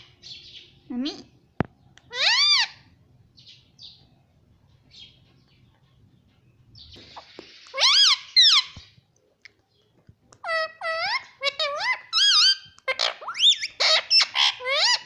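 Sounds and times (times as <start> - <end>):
parrot loud high calls: 2.1 - 2.9, 7.7 - 8.8, 10.4 - 15.0.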